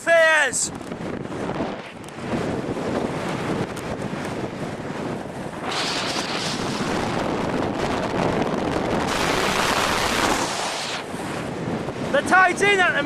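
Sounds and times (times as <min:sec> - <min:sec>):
wind buffeting microphone: 0:00.0 - 0:13.0
surf rushing: 0:04.7 - 0:13.0.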